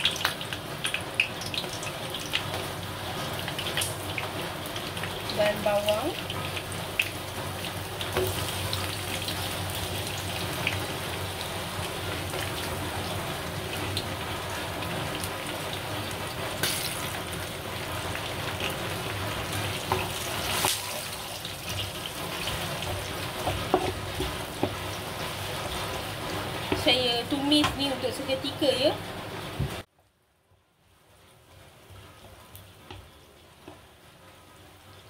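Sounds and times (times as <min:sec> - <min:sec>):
onions sizzling in a pan: 0:00.0 - 0:29.9, 0:30.8 - 0:35.0
wooden spatula scraping a pan: 0:21.7 - 0:24.9.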